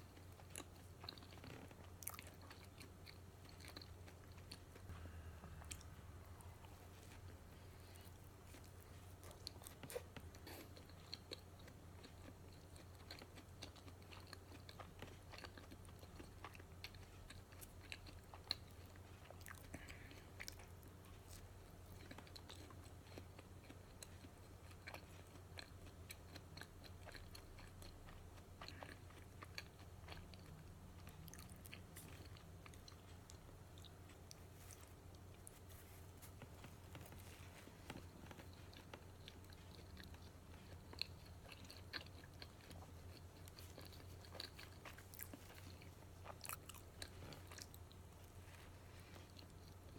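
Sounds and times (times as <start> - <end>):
close chewing: 0.0 - 49.9
low hum: 4.6 - 9.6.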